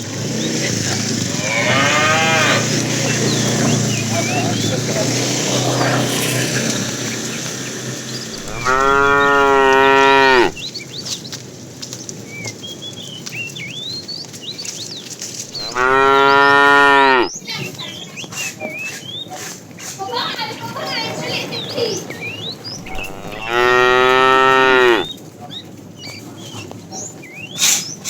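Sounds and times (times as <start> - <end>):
cow mooing: 1.3 - 3.4, 8.4 - 10.6, 15.5 - 17.3, 22.8 - 25.1.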